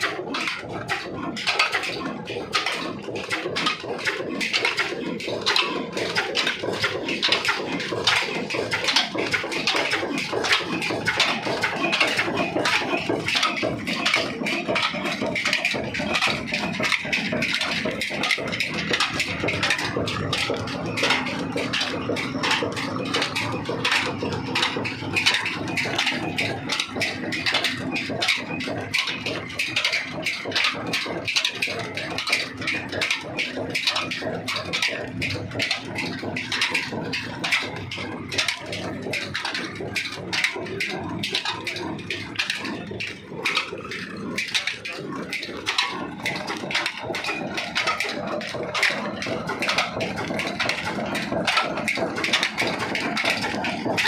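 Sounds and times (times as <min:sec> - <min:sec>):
diesel engine clattering: 0:00.0 - 0:54.0.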